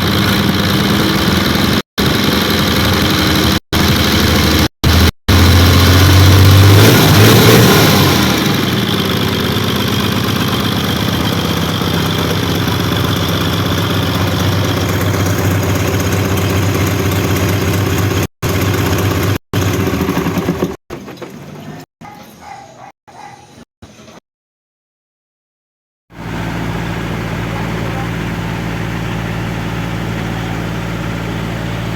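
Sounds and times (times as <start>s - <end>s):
diesel bus engine idling: 0.0s - 6.8s, 8.0s - 20.0s, 26.2s - 31.9s.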